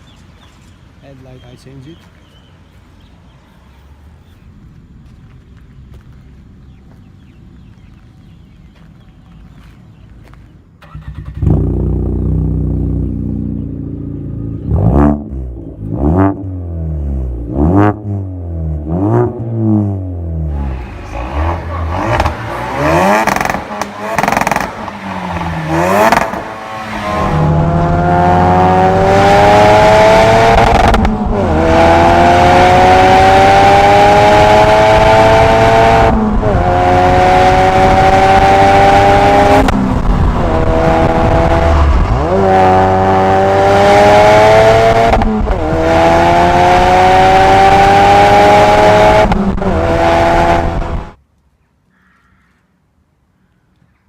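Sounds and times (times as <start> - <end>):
car engine accelerating: 2.3 - 51.2.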